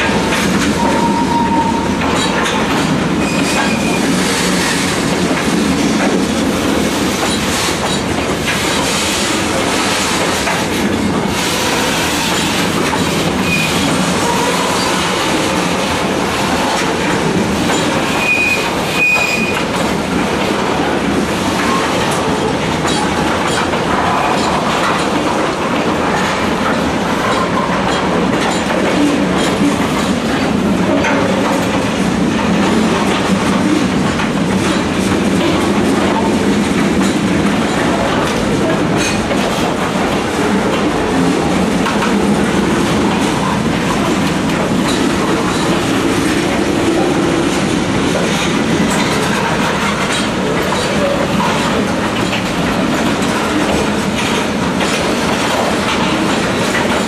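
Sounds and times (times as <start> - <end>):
train wheels rumbling on rails: 0.0 - 57.0
high wheel squeals: 18.1 - 19.6.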